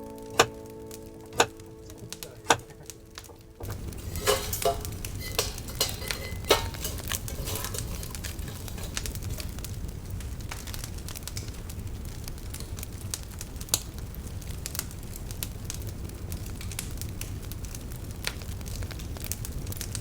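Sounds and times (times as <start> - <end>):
soft sustained music: 0.0 - 7.8
clinks and knocks: 2.5 - 9.6.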